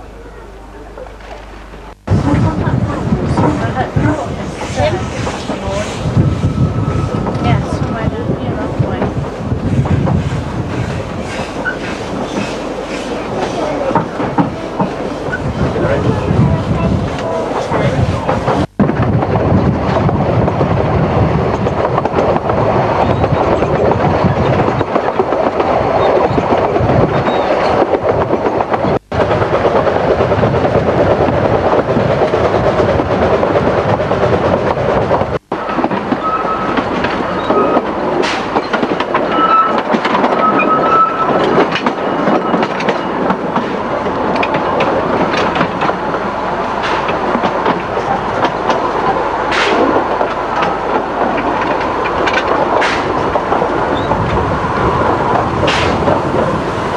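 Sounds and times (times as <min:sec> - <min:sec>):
train rumbling: 0:00.0 - 0:56.9
wheels clattering over rails: 0:01.0 - 0:56.9
high wheel squeals: 0:35.6 - 0:38.0, 0:38.6 - 0:43.2.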